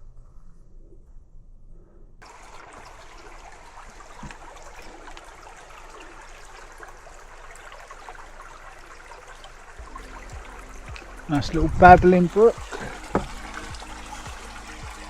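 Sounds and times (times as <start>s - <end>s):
brook water trickling over stones: 2.2s - 15.0s.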